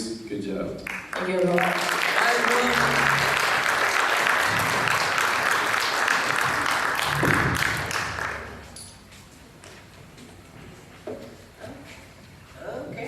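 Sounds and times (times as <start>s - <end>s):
audience applauding: 0.8s - 8.8s
audience cheering: 1.2s - 8.6s.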